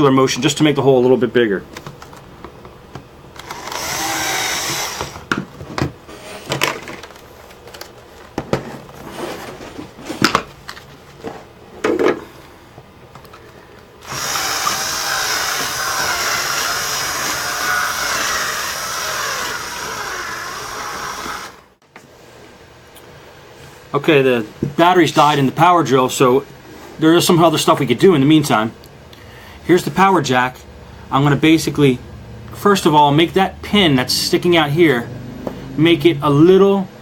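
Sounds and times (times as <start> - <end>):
cordless drill drilling plastic: 3.4 - 5.2, 14.0 - 21.7.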